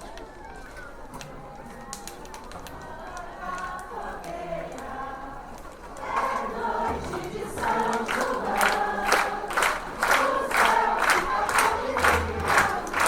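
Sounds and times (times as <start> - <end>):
group of people singing: 2.7 - 13.0.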